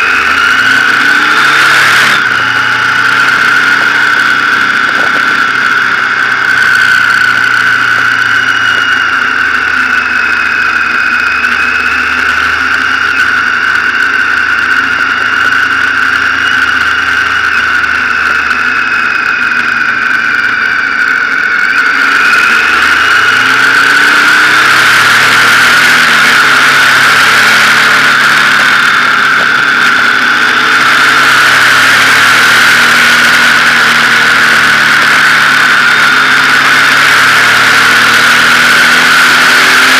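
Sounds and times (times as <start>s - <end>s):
motorcycle engine running: 0.0s - 39.9s
steady high whine: 0.0s - 39.9s.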